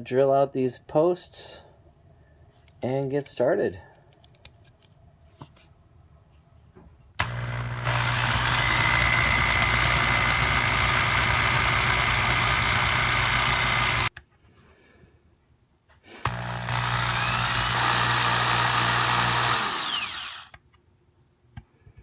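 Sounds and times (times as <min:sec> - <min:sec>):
electric drill whining: 0:07.2 - 0:14.1, 0:16.2 - 0:20.6.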